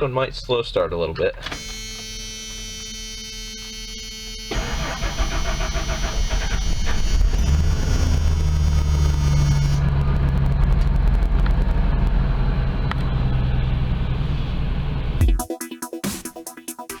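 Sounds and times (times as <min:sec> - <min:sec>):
electronic music: 0:15.2 - 0:17.0.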